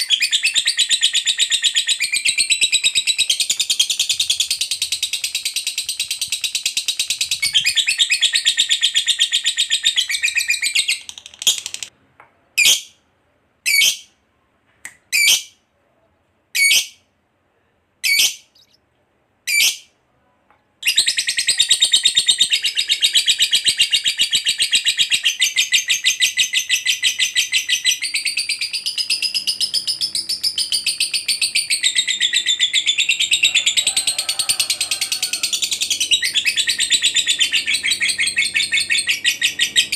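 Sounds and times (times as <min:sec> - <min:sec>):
lovebird chattering: 0:00.0 - 0:11.9, 0:20.8 - 0:33.9, 0:34.8 - 0:39.9.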